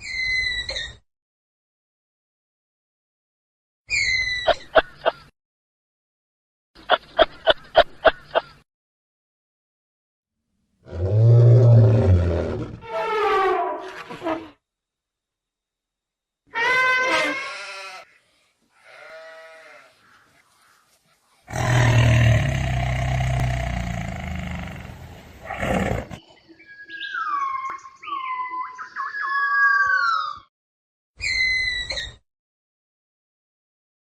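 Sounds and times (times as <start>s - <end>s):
loud rough animal call: 21.5s - 26.2s.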